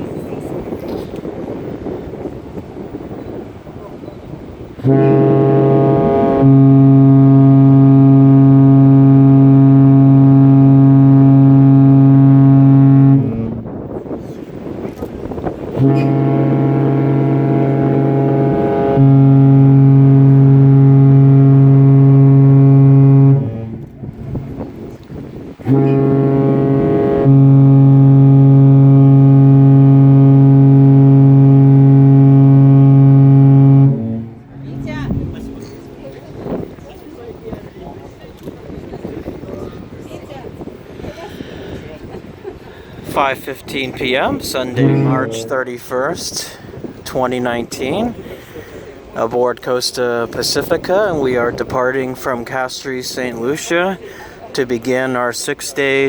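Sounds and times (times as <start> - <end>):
ship horn blast: 0.1 - 56.0.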